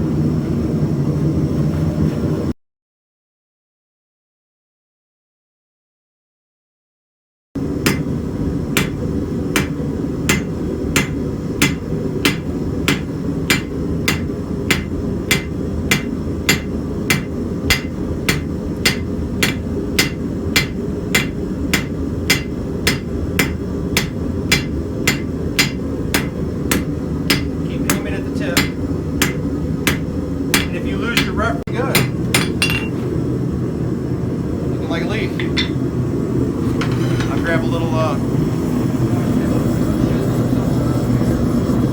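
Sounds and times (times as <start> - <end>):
hammer striking steel on anvil: 7.8 - 33.0, 35.4 - 35.8.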